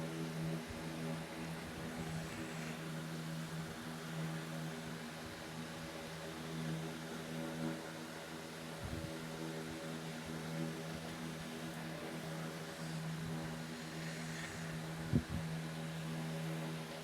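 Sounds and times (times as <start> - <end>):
constant hiss: 0.0 - 6.2, 10.8 - 17.0.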